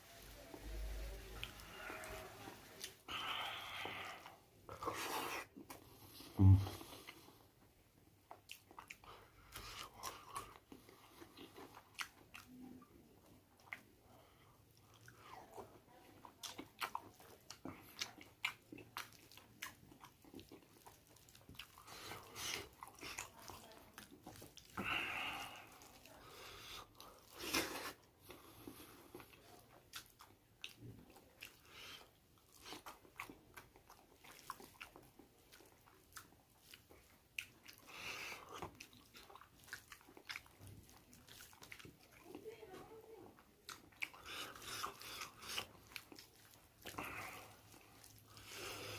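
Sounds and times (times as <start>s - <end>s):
person chewing and crunching: 8.2s - 13.9s, 14.8s - 42.6s, 43.3s - 48.9s.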